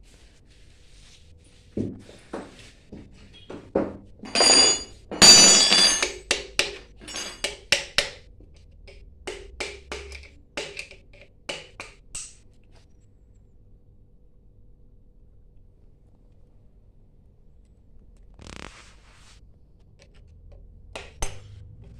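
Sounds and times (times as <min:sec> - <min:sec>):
tools tapping on metal: 0:03.5 - 0:12.4
scraping and ringing metal: 0:04.2 - 0:07.6.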